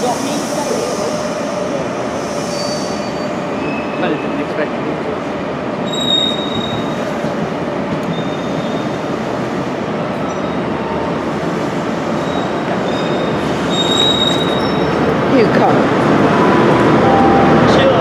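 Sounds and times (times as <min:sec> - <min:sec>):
train wheels rumbling on rail: 0:00.0 - 0:18.0
high-pitched wheel squeals: 0:05.9 - 0:06.9, 0:12.2 - 0:15.0.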